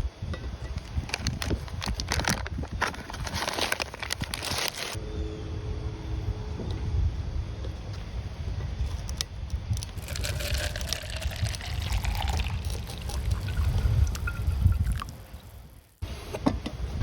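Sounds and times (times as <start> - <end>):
low rumble: 5.0 - 15.9
liquid pouring: 9.8 - 15.8.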